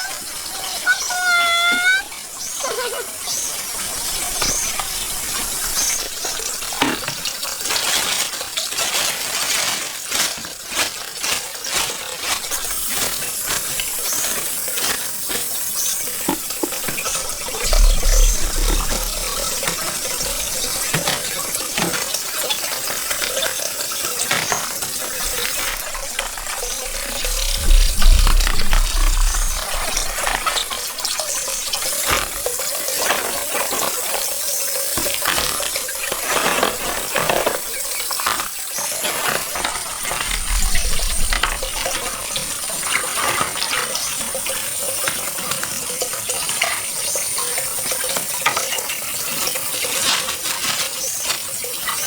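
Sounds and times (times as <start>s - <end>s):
water splashing by hands: 0.0s - 46.3s
low rumble: 17.1s - 20.9s, 25.8s - 31.8s.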